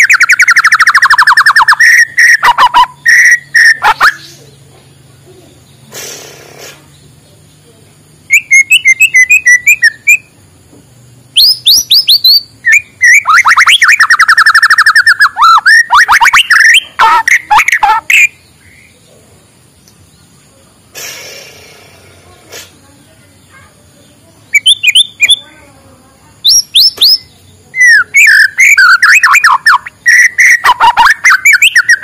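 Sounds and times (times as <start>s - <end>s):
sweeping bird whistles: 0.0s - 4.3s, 8.3s - 10.3s, 11.4s - 17.2s, 24.5s - 25.4s, 26.4s - 32.0s
songbird singing: 0.0s - 32.0s.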